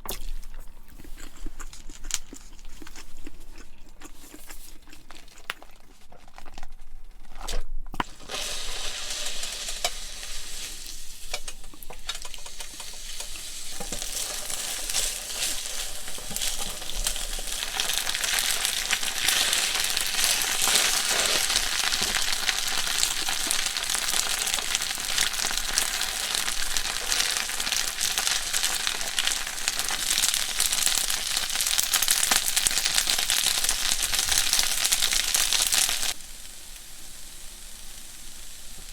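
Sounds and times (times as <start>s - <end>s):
food sizzling in a pan: 8.0s - 38.9s.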